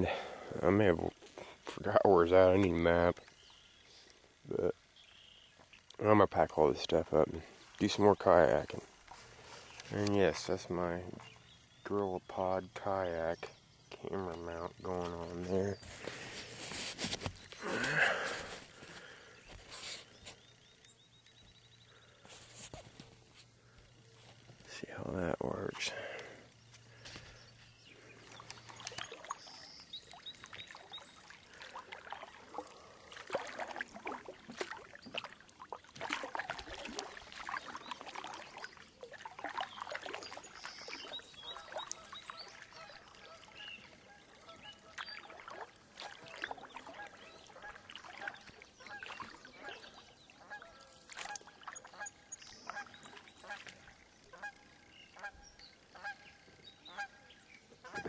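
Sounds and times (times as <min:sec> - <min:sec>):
geese honking: 0:46.1 - 0:58.0.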